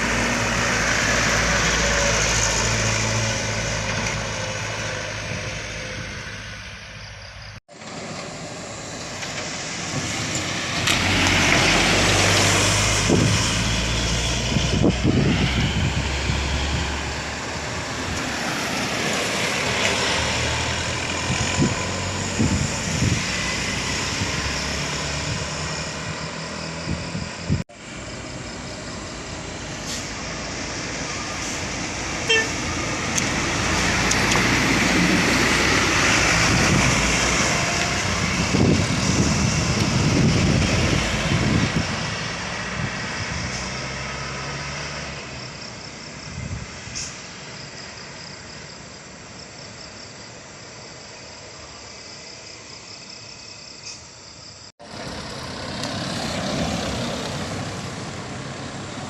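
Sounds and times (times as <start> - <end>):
truck engines running: 0.0 - 51.9, 54.8 - 59.0
road traffic noise: 0.0 - 59.0.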